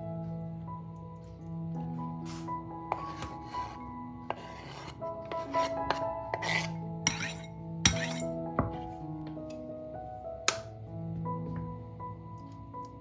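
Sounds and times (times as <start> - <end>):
soft background music: 0.0 - 13.0
rasping rubbing strokes: 2.3 - 8.2.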